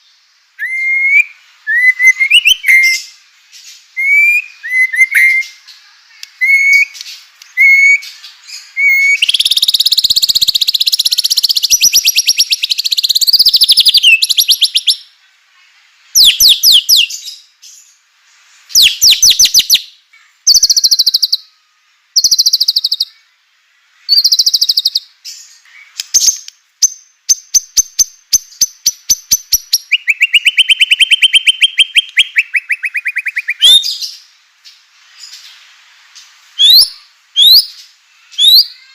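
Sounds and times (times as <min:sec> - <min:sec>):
songbird singing rapid trills: 0:00.0 - 0:15.1, 0:20.5 - 0:21.6, 0:22.2 - 0:23.2, 0:24.1 - 0:34.3.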